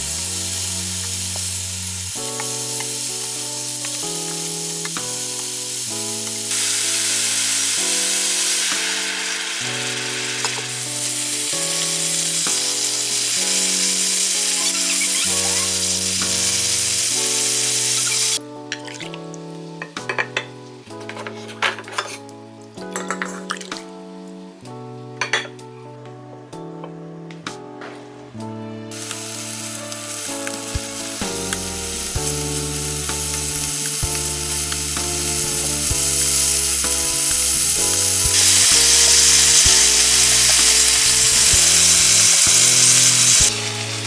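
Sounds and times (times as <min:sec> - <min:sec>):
food sizzling in a pan: 0:00.0 - 0:18.4, 0:28.9 - 0:44.0
background music with slow chords: 0:00.0 - 0:44.0.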